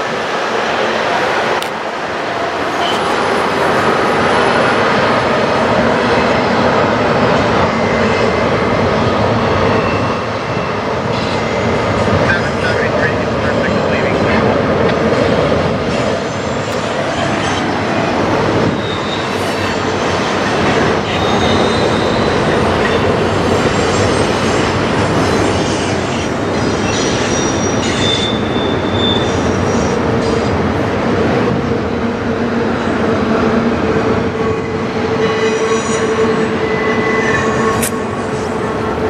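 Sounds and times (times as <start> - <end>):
freight train rumbling past: 0.0 - 39.0
wheel flange squeals: 18.7 - 19.8, 21.0 - 23.0, 26.8 - 29.9.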